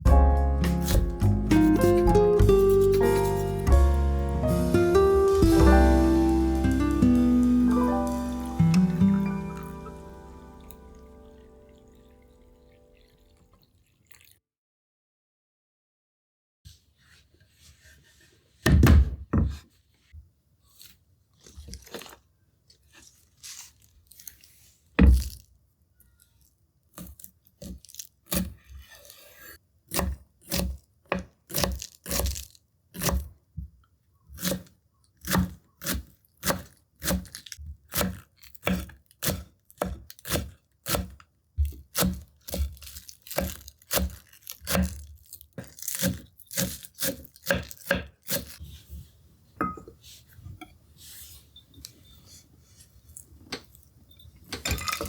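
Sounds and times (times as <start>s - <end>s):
knife chopping on cutting board: 0.1s - 4.8s, 29.9s - 32.4s, 34.4s - 45.0s.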